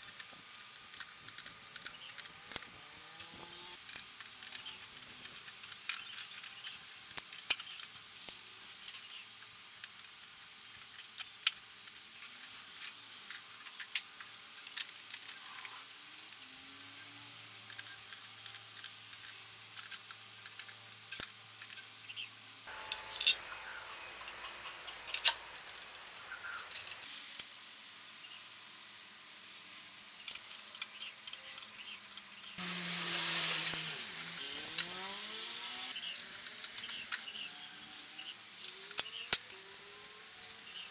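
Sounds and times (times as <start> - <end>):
sharp irregular ticks: 0.0 - 12.0.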